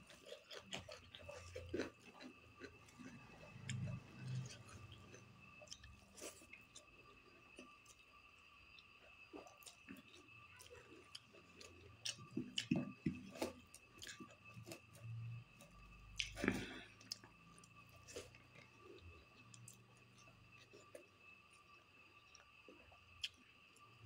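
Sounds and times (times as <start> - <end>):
faint high whine: 0.0 - 24.0
person chewing with lip smacks: 12.0 - 14.9, 16.2 - 18.7.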